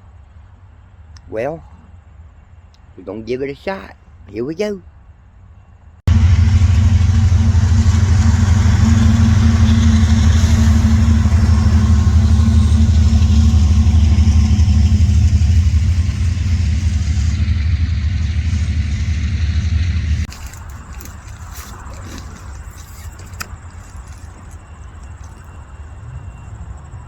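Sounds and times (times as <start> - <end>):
freight train rumbling: 0.0 - 27.0
rushing noise: 6.1 - 27.0.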